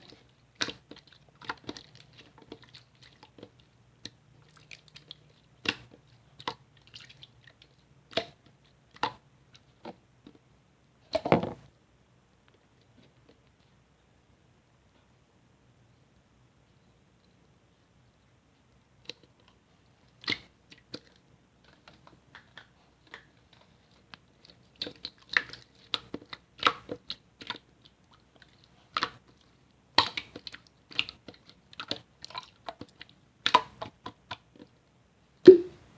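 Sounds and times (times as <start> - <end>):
slime clicking and popping: 35.5 - 35.8.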